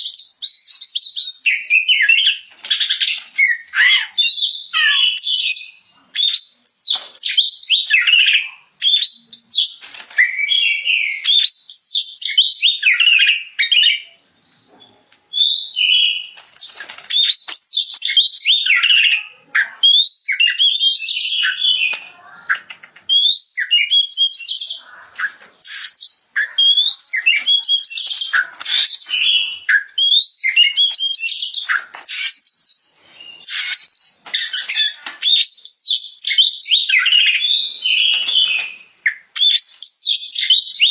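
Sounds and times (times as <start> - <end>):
songbird whistling: 15.3 - 16.4, 17.1 - 40.9.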